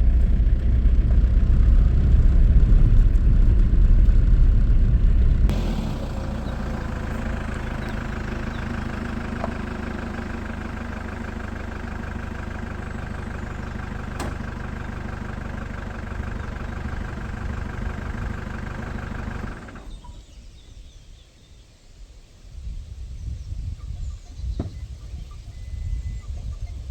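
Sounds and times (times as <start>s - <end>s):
vehicle engine idling: 0.0s - 20.4s.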